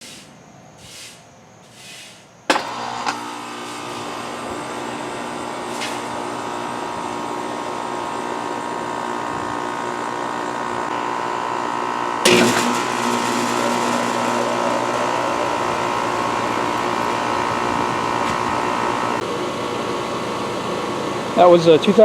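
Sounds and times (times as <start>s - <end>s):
compressor kicking on thud: 2.5s - 9.7s, 12.2s - 22.0s
heat pump humming: 2.5s - 22.0s.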